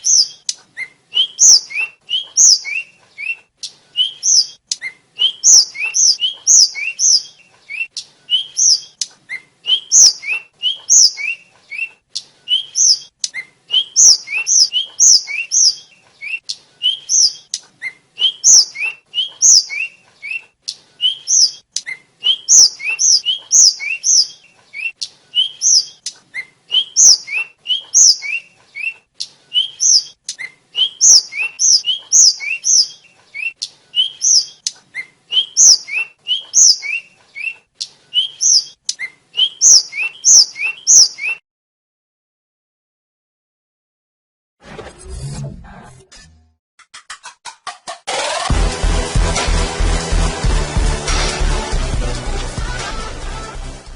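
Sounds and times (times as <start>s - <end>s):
bird singing high whistled notes: 0.0s - 3.4s, 4.0s - 11.9s, 12.5s - 20.4s, 21.0s - 29.0s, 29.6s - 37.6s, 38.2s - 41.4s.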